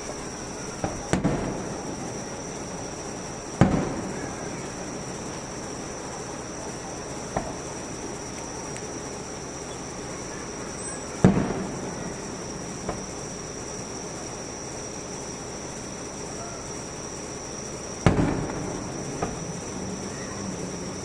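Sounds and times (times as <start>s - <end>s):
sharp firework bangs: 0.0s - 8.4s, 10.5s - 14.4s, 18.0s - 20.4s
firework shell boom: 3.6s - 4.3s, 18.0s - 19.5s.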